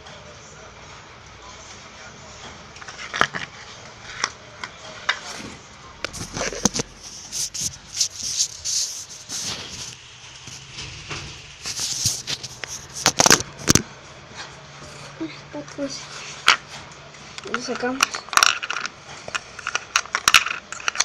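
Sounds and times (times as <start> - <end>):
spatula scraping fidget spinner: 2.8 - 13.8.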